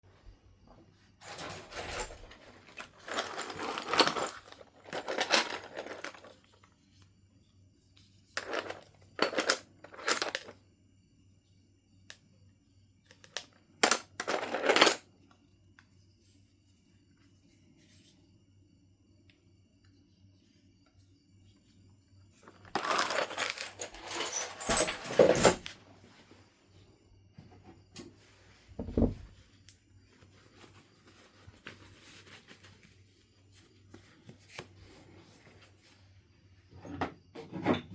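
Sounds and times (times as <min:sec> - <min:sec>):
stone clinking and scraping: 0:01.2 - 0:06.5, 0:22.4 - 0:25.6.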